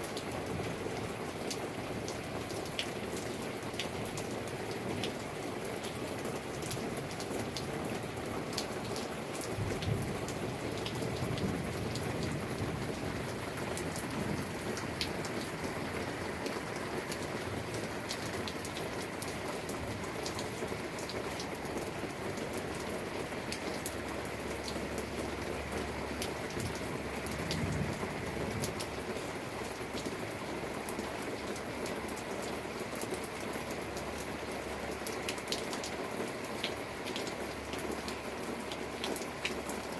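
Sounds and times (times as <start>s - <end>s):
steady rain falling: 0.0s - 39.9s
low thunder rumbling: 9.6s - 16.0s, 27.4s - 28.8s.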